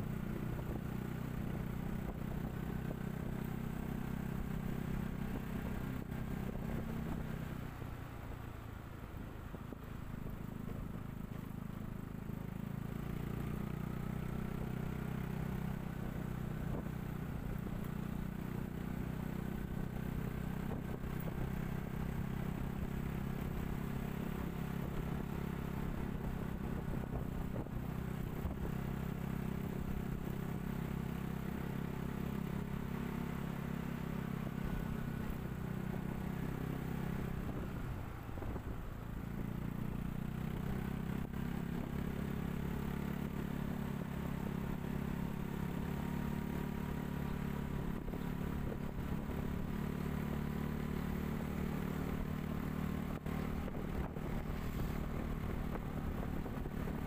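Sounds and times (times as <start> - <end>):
vehicle engine cruising: 0.0 - 57.0
tyre and road noise: 47.1 - 57.0.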